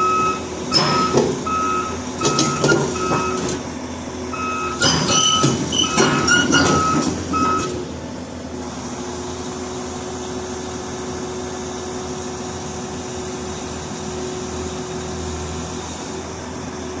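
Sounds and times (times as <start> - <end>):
backup alarm beeping: 0.0 - 3.6, 4.3 - 7.8
diesel engine running with whine: 0.0 - 17.0.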